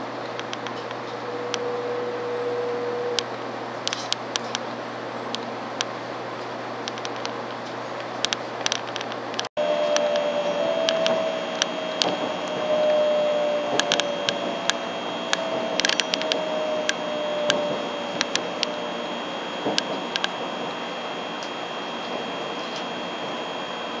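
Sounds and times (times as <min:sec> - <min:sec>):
train motor whine: 0:00.0 - 0:07.9, 0:09.0 - 0:24.0
train running noise: 0:00.0 - 0:24.0
sharp clicks and rattles: 0:03.1 - 0:04.6, 0:06.8 - 0:24.0.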